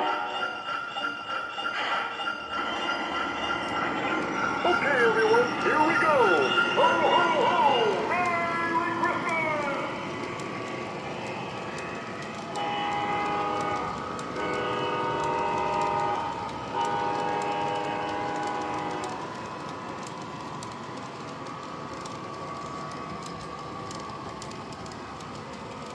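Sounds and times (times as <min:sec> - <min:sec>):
wheels clicking over track: 0:03.7 - 0:25.9
locomotive air horn blasts: 0:12.5 - 0:19.2.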